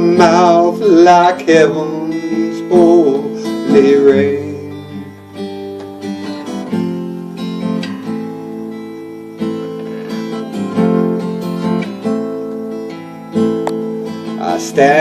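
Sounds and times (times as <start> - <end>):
person singing: 0.0 - 5.0, 14.3 - 15.0
acoustic guitar strumming: 0.0 - 15.0.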